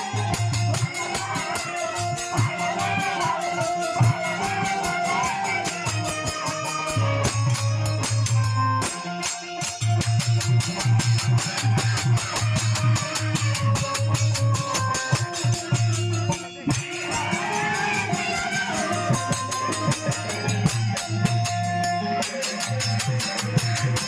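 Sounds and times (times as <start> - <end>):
wavering melody: 0.0 - 9.4, 11.7 - 24.0.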